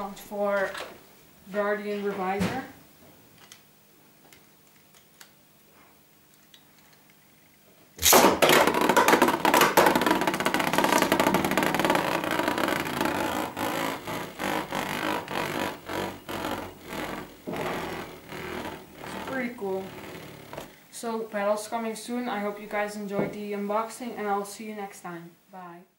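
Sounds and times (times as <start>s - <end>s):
spinning top rattling and grinding: 6.4s - 20.7s
spinning top ripped out of launcher: 8.0s - 11.5s.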